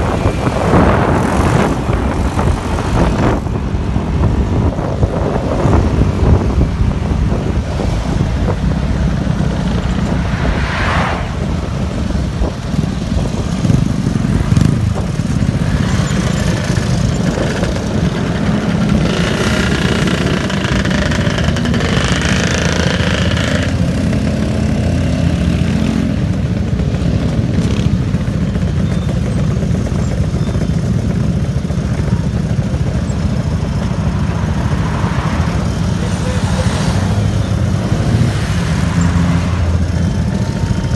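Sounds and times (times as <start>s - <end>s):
wind rumble on microphone: 0.0s - 36.1s
bright rush of noise: 9.4s - 12.5s
motorcycle engine running: 11.4s - 40.9s.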